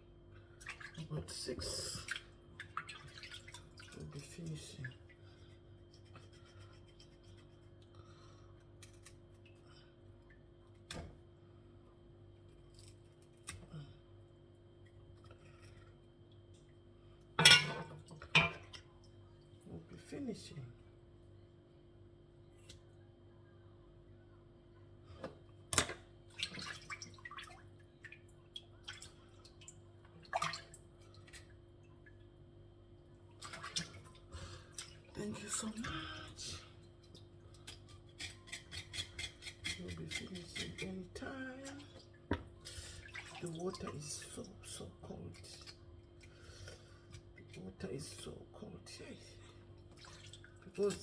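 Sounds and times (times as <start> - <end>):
water splashing in a basin: 0.5 - 5.6, 25.8 - 32.4, 33.0 - 38.0, 40.0 - 46.4, 49.7 - 51.0.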